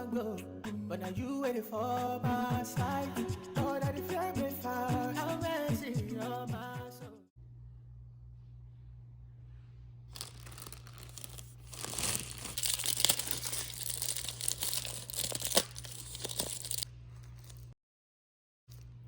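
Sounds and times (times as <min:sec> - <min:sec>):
steady low hum: 0:07.4 - 0:17.8
plastic crinkling and rustling: 0:10.1 - 0:17.8
sharp crackles: 0:10.2 - 0:17.7.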